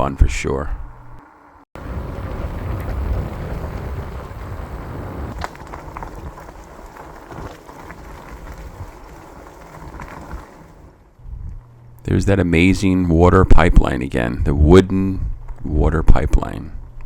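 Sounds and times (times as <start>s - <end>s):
tyres rumbling on trail: 1.2s - 11.2s
wind buffeting microphone: 1.8s - 11.6s
bike rattles and clicks: 1.8s - 11.7s.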